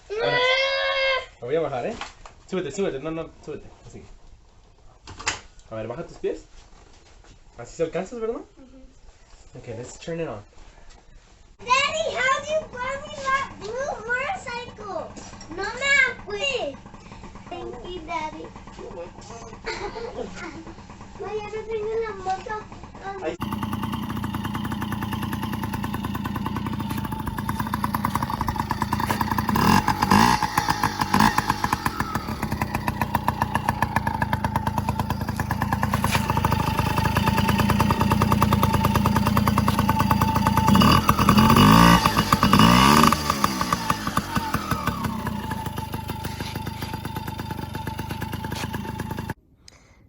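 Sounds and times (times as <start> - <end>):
small motorcycle engine revving: 12.4 - 21.2, 22.4 - 49.4.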